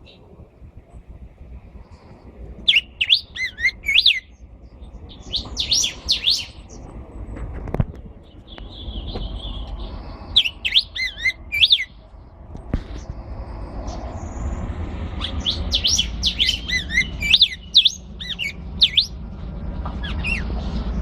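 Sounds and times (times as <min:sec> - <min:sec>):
songbird whistling: 0:02.6 - 0:04.4, 0:05.1 - 0:06.8, 0:08.4 - 0:12.0, 0:15.2 - 0:19.2, 0:20.0 - 0:20.5.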